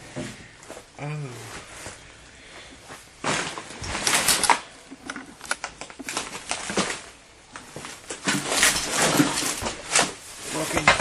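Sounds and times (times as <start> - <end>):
clicks crinkles and knocks: 3.3 - 11.0.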